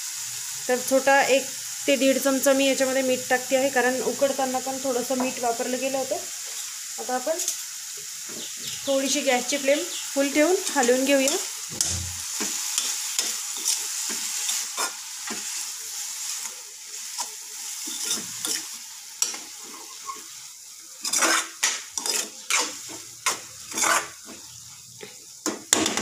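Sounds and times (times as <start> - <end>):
beans sizzling in a pan: 0.0 - 26.0
spatula scraping a pan: 10.6 - 20.4, 21.0 - 24.5.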